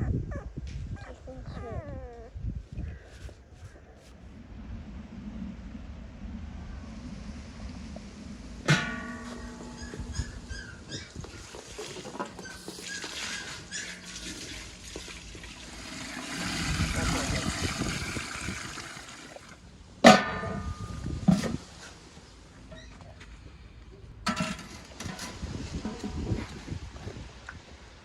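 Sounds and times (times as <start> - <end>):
water pouring: 8.0 - 19.6.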